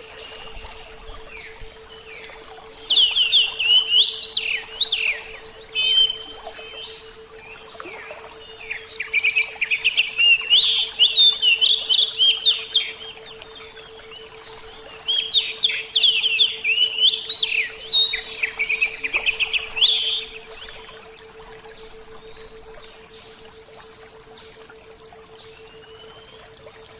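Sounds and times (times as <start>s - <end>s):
steady low hum: 0.0s - 26.9s
bird singing whistled phrases: 2.6s - 7.0s, 15.1s - 20.7s.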